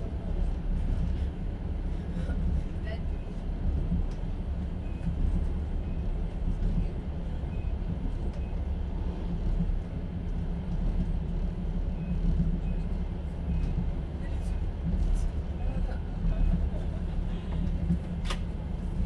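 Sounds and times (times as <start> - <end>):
train carriage rumbling: 0.0 - 19.0.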